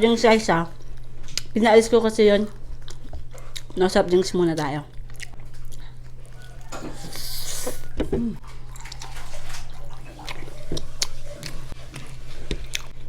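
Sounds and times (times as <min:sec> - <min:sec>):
liquid sounds: 0:04.9 - 0:13.0
carbonated drink hissing: 0:06.9 - 0:08.0.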